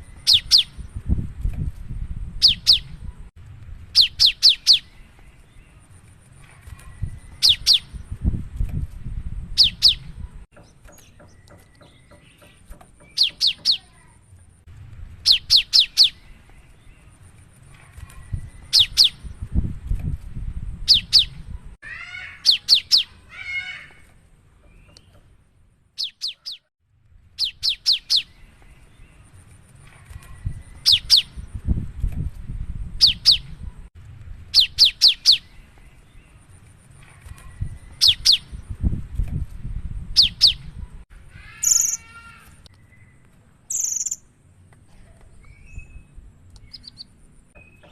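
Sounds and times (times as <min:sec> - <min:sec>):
bird singing sharp high notes: 0:43.7 - 0:44.2.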